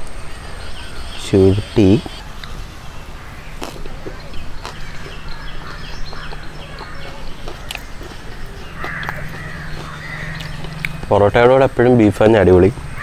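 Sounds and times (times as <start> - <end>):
small bird chirping: 0.0 - 11.8.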